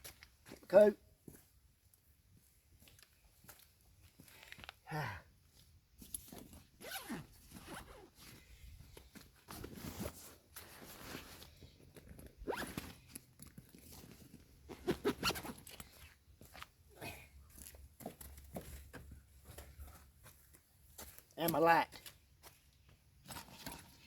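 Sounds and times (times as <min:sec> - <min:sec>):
clothing and gear rustling: 0:06.0 - 0:16.7
zipper being pulled: 0:06.8 - 0:08.3, 0:12.2 - 0:13.1, 0:14.7 - 0:15.8.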